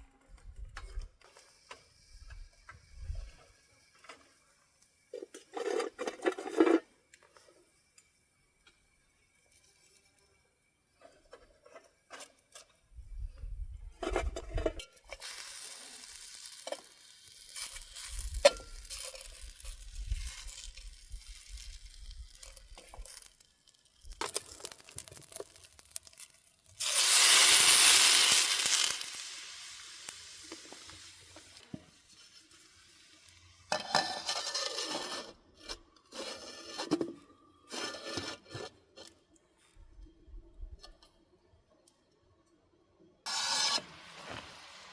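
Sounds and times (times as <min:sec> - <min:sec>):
food sizzling: 0:15.1 - 0:35.0, 0:43.3 - 0:44.9.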